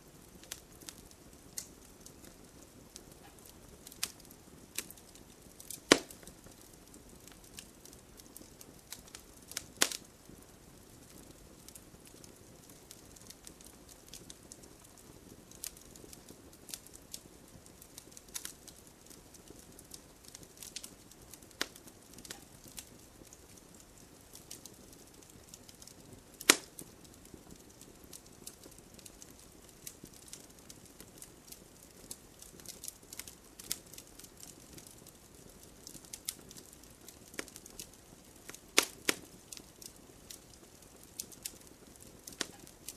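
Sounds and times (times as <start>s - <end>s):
wood fire crackling and popping: 0.0s - 42.9s.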